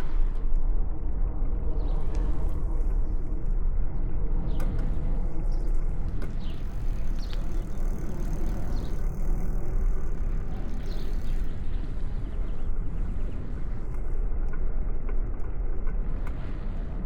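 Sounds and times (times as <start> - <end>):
bicycle riding rumble: 0.0 - 17.0.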